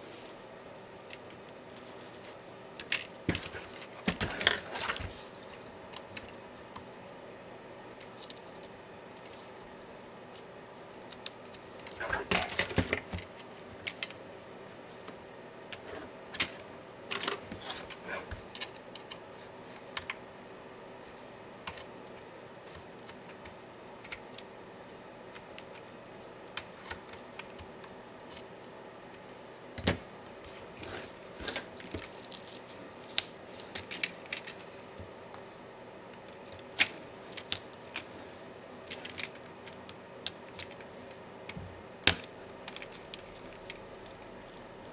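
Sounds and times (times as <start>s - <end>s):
clicks and clatters of small parts: 0.0s - 5.2s, 11.0s - 14.2s, 15.8s - 19.2s, 29.8s - 35.1s, 36.1s - 38.1s, 38.8s - 40.9s, 42.0s - 44.9s.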